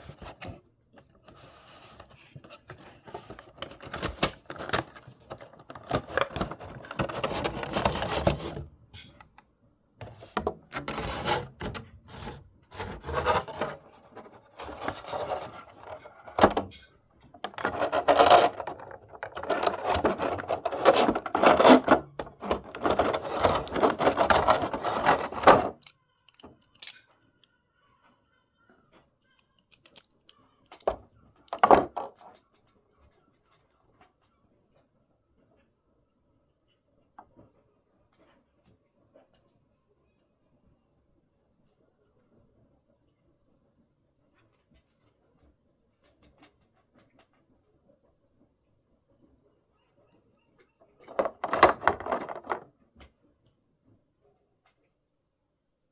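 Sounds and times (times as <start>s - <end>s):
packaging rubbing and scraping: 1.2s - 8.6s, 10.0s - 16.8s, 17.4s - 25.9s, 51.1s - 52.6s.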